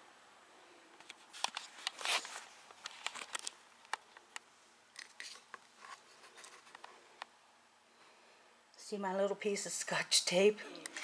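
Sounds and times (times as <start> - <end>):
handling clicks and crackles: 1.0 - 7.3.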